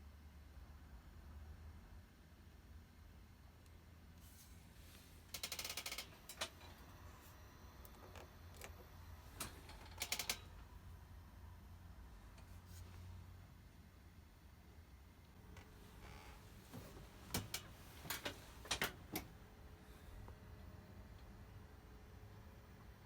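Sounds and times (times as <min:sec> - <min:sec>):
rapid mechanical clicking: 0:05.3 - 0:06.8, 0:09.4 - 0:10.5.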